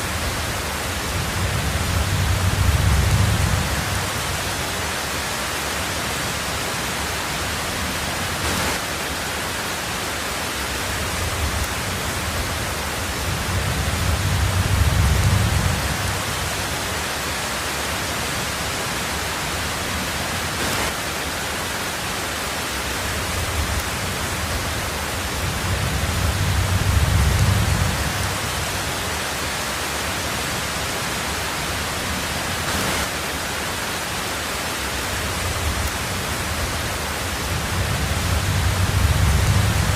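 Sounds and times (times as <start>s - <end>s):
thunder rumbling: 0.0s - 4.8s, 11.1s - 16.8s, 23.3s - 29.0s, 35.2s - 39.9s
heavy rain on a tin roof: 0.0s - 39.9s.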